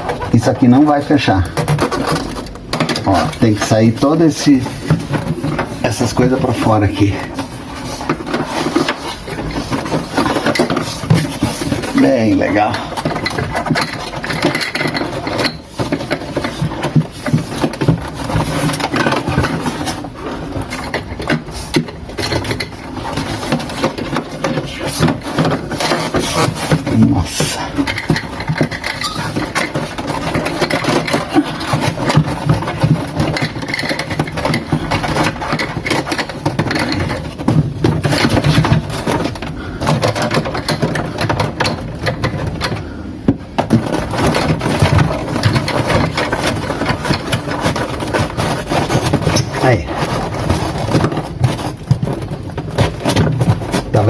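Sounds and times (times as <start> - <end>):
plastic parts rubbing and scraping: 0.0 - 54.0.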